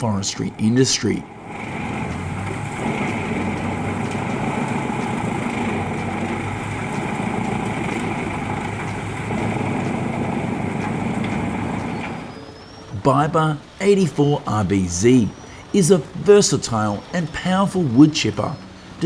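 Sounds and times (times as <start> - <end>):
wood chipper running: 0.6 - 13.0.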